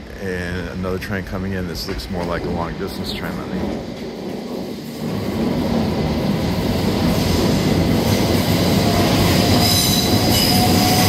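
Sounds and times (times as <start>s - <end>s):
train wheels rumbling on track: 0.0s - 11.0s
wheel squeal: 9.0s - 11.0s.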